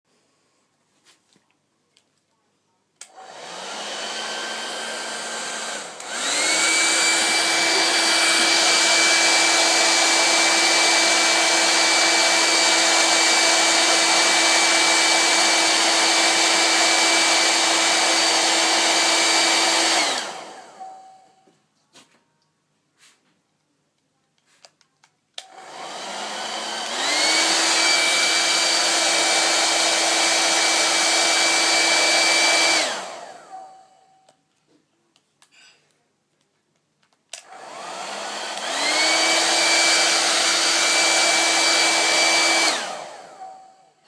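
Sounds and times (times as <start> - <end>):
hair dryer switch click: 3.0 - 3.4, 5.5 - 9.3, 25.4 - 28.3, 37.3 - 37.8, 38.4 - 41.0
hair dryer running: 3.0 - 21.5, 25.4 - 34.2, 37.3 - 44.0.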